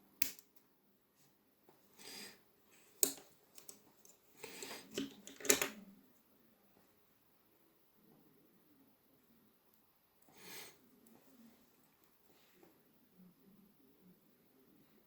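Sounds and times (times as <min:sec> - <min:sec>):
sharp clicks of small parts: 0:00.2 - 0:00.6, 0:03.0 - 0:05.8.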